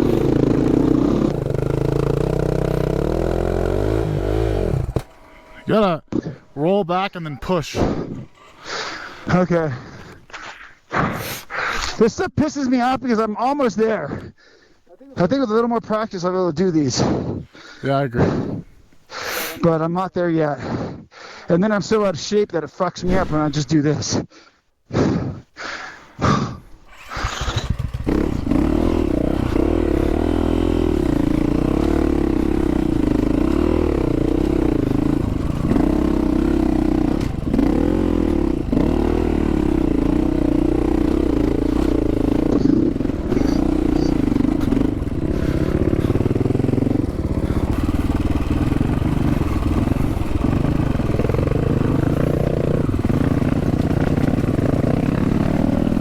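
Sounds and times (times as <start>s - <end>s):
dirt bike engine running: 0.0s - 10.2s, 27.0s - 56.0s
engine clatter: 0.0s - 10.4s, 26.8s - 56.0s.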